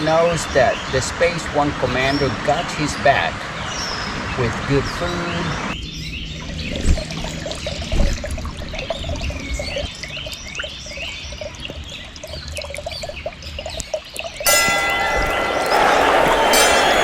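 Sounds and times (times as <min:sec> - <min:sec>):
small birds chirping: 0:00.0 - 0:17.0
trickling dripping water: 0:05.7 - 0:17.0.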